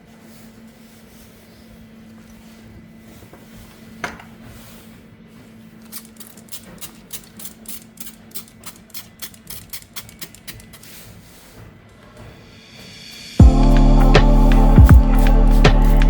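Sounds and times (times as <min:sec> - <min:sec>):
steady low hum: 0:13.0 - 0:16.0.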